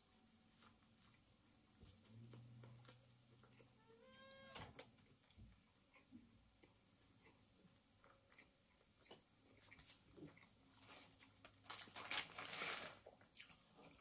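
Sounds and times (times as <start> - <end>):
person chewing: 2.2 - 3.8, 5.0 - 11.6, 12.6 - 14.0.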